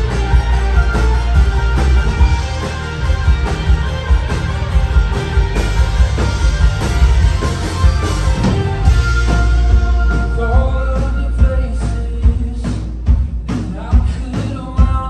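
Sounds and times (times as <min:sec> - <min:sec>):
electric guitars: 0:00.0 - 0:12.1
electric bass: 0:00.0 - 0:13.0
drum kit beat: 0:00.0 - 0:15.0.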